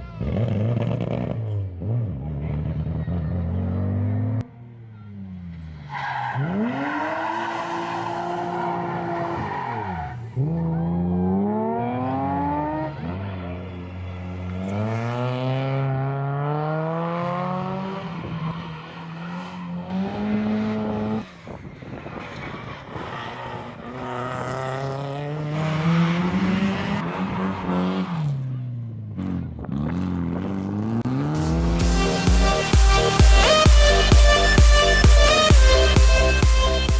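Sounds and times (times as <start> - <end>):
rally car engines revving: 0.0 - 36.9.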